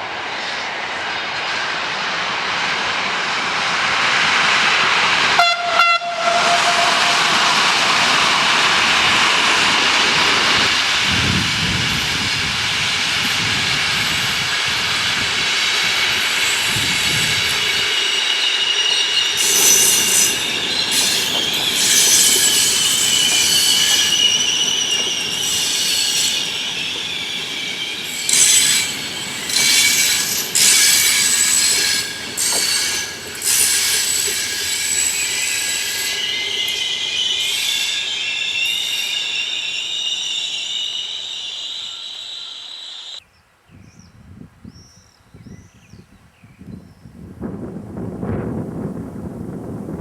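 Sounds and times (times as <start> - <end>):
train wheels squealing on rails: 0.0 - 43.2
harsh screeching bursts: 5.9 - 10.2, 15.6 - 43.2.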